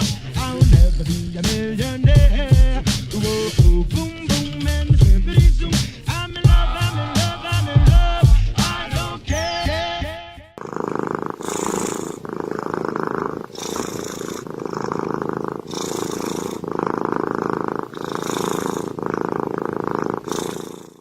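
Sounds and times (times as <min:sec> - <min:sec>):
cat purring: 0:00.0 - 0:04.6, 0:10.6 - 0:21.0.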